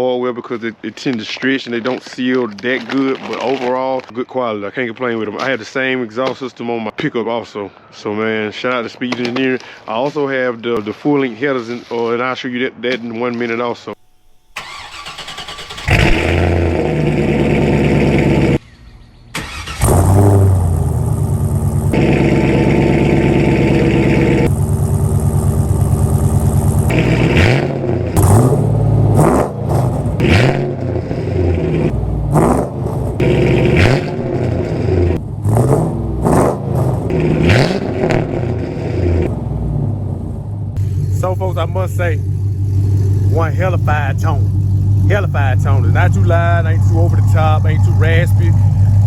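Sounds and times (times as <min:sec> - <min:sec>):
engine throttle blips: 0:14.0 - 0:49.0
car engine idling: 0:14.3 - 0:18.6, 0:19.3 - 0:49.0.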